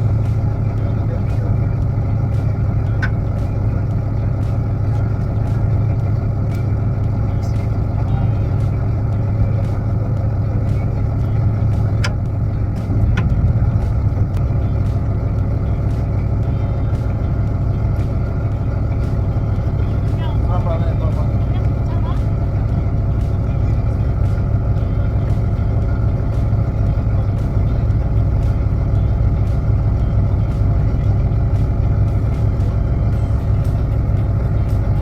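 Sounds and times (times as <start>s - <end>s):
boat engine humming: 0.0s - 35.0s.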